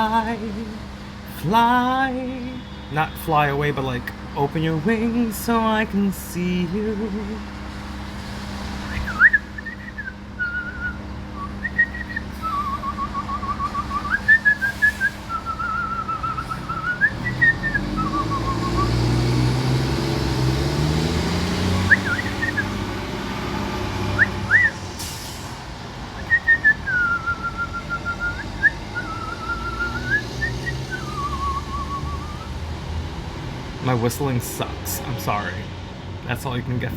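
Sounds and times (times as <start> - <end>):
vehicle passing: 0.0 - 36.9
person whistling warbling notes: 21.9 - 22.8, 26.2 - 32.5.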